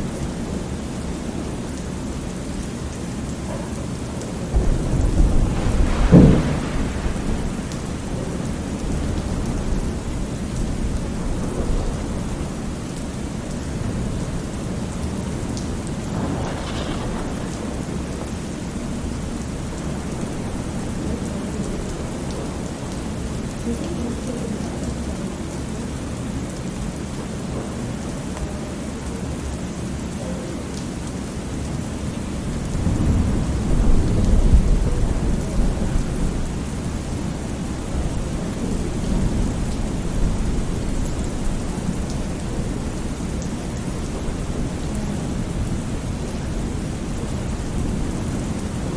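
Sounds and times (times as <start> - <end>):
heavy rain: 0.0 - 48.9
thunder rolling: 4.4 - 22.8, 32.3 - 48.8.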